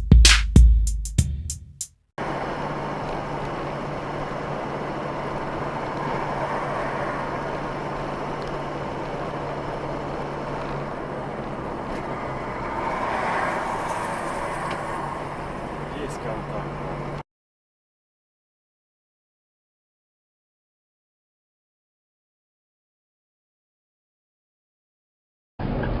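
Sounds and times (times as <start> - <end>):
car road and engine noise: 2.2 - 17.2, 25.6 - 26.0.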